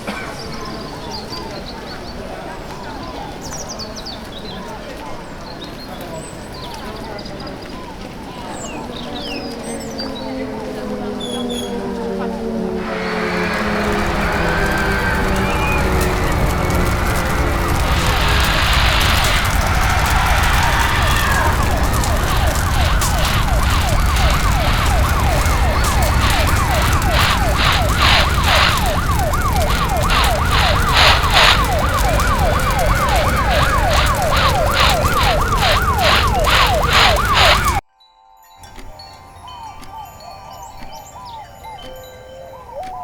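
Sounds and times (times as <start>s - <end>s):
engine and traffic rumble: 8.4s - 37.8s
pulsing high tone: 12.8s - 37.8s
siren yelping: 12.8s - 37.8s.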